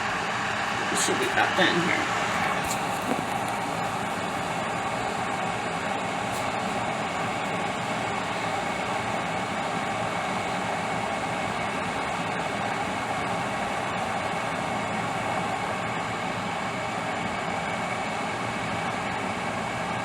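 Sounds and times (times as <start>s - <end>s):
kettle boiling and bubbling: 0.0s - 20.0s.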